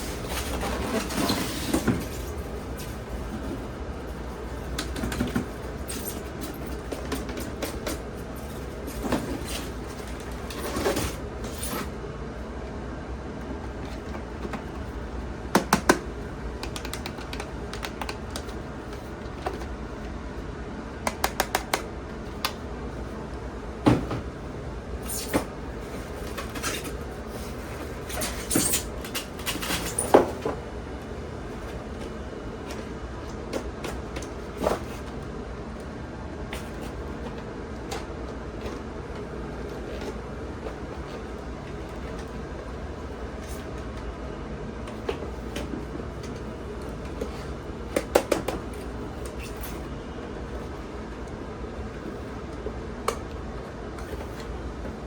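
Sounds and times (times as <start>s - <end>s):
steady low hum: 0.0s - 55.0s
hard objects clicking and knocking: 15.5s - 18.5s.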